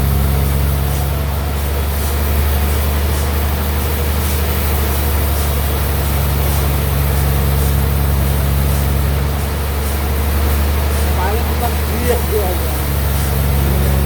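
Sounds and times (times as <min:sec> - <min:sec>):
bandsaw running: 0:00.0 - 0:14.0.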